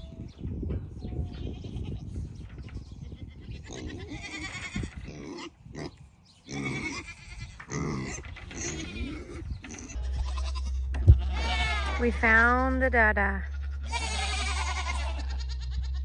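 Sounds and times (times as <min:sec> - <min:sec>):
goats bleating: 0:03.0 - 0:05.9, 0:06.5 - 0:12.5, 0:13.4 - 0:16.0.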